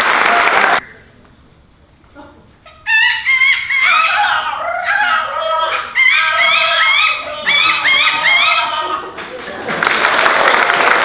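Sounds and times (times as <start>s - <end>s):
people imitating turkey calls: 2.7s - 9.4s.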